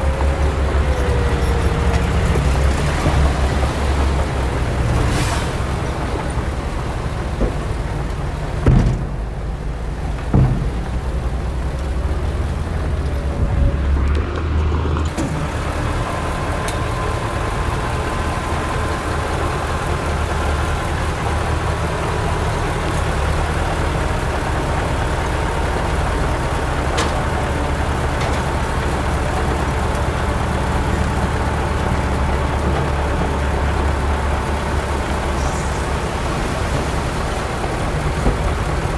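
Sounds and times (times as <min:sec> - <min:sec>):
heavy diesel engine droning: 0:00.0 - 0:38.9
sharp knocks: 0:08.6 - 0:09.3, 0:10.2 - 0:11.0.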